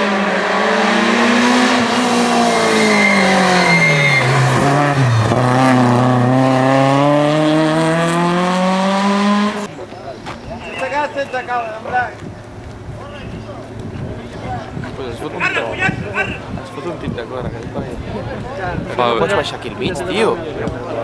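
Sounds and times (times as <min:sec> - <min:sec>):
rally car engine: 0:00.0 - 0:10.0
tyre squeal: 0:02.4 - 0:05.3.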